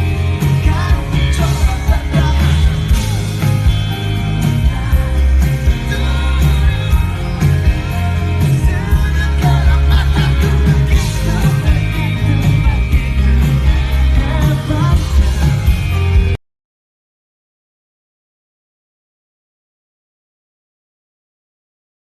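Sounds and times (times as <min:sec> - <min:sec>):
man singing: 0:00.0 - 0:16.4
pop-rock band playing: 0:00.0 - 0:16.4.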